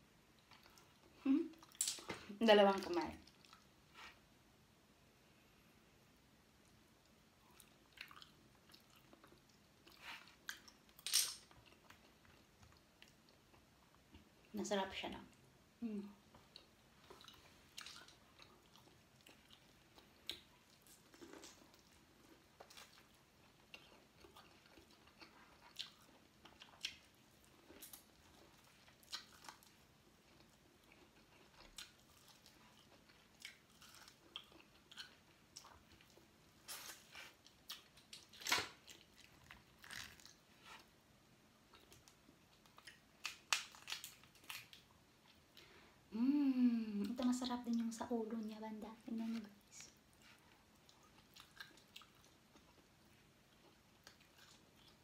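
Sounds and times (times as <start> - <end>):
person chewing: 0.4 - 2.1, 7.4 - 14.3, 16.2 - 40.9, 41.7 - 45.8, 49.8 - 55.0.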